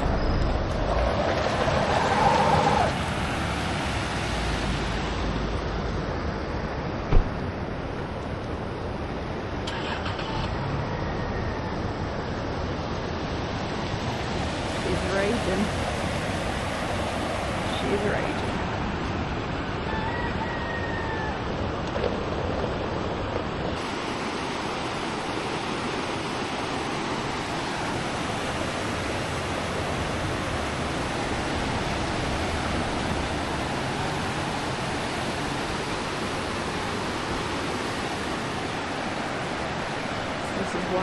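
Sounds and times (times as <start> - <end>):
floodwater rushing: 0.0 - 6.5, 7.1 - 10.7, 12.9 - 20.2, 21.4 - 41.0.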